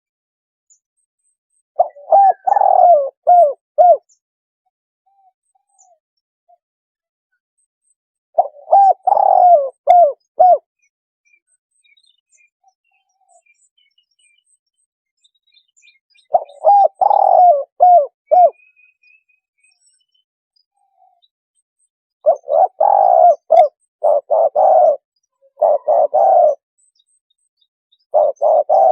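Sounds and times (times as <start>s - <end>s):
dove cooing: 1.8s - 4.1s, 8.4s - 10.7s, 16.2s - 18.6s, 22.2s - 26.6s, 28.1s - 28.9s
small birds chirping faintly: 5.0s - 6.6s, 7.3s - 28.9s.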